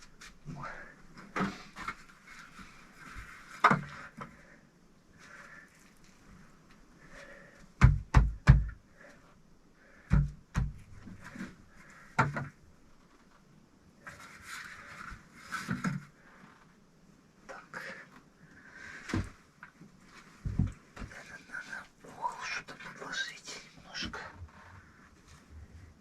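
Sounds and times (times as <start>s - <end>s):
scraping and rustling: 13.0s - 16.8s.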